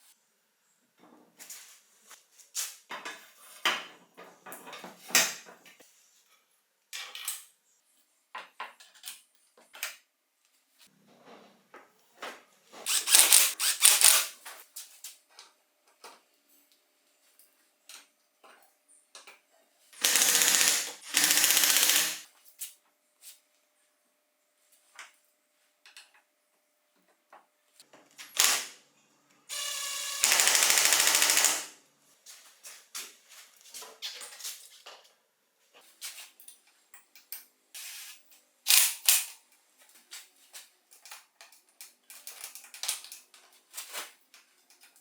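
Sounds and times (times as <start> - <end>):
tools and metal parts clicking: 12.9 - 14.3, 20.0 - 22.2.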